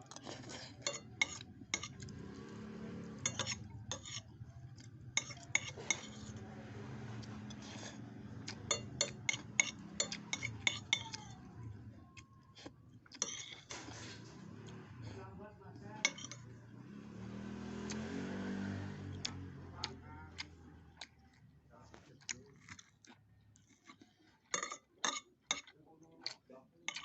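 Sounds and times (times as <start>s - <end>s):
cutlery clinking against a bowl: 0.1s - 2.1s, 3.2s - 4.4s, 5.2s - 6.4s, 7.4s - 11.2s, 13.1s - 14.1s, 16.0s - 16.5s, 23.6s - 27.0s.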